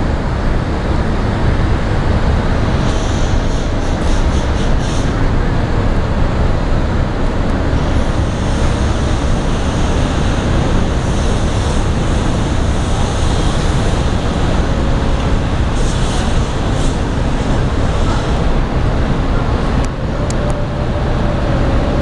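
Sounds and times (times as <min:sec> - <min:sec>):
deep ship rumble: 0:00.0 - 0:22.0.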